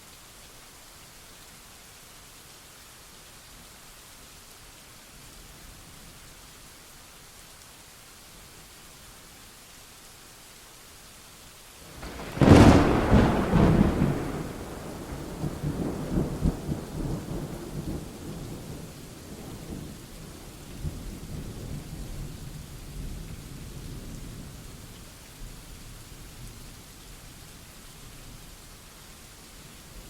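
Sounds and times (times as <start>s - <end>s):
steady rain: 0.0s - 30.0s
low rolling thunder rumble: 11.9s - 24.5s
sharp thunderclap: 12.0s - 18.4s.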